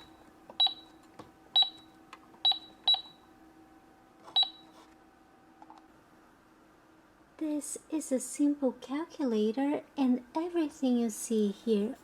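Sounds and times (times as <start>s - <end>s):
short high keypad beeps: 0.0s - 0.9s, 1.6s - 3.2s, 4.4s - 4.6s.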